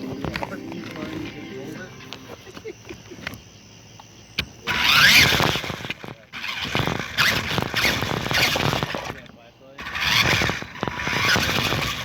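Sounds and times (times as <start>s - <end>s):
toy car motor whine: 4.5s - 12.0s.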